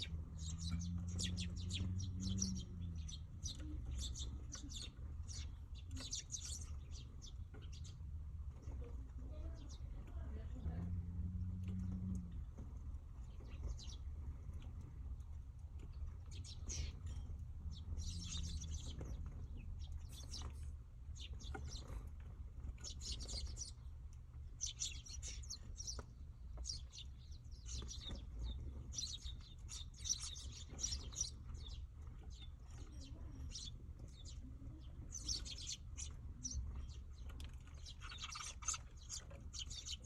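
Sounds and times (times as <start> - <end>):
steady low rumble: 0.0 - 39.9
sparrows chirping: 0.0 - 40.0.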